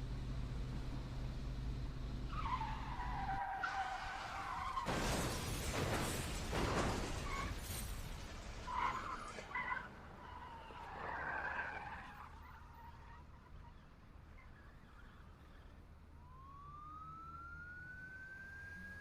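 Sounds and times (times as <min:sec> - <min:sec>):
car crash with shattering glass: 0:03.5 - 0:11.0.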